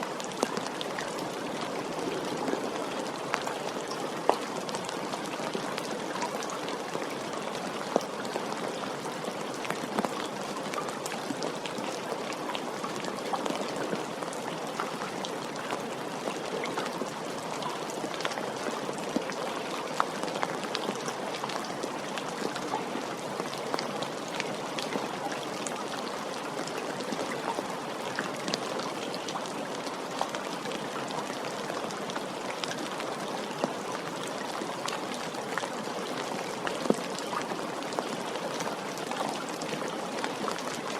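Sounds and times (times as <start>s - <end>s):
steady rain hiss: 0.0s - 40.9s
raindrops tapping a surface: 9.6s - 22.8s.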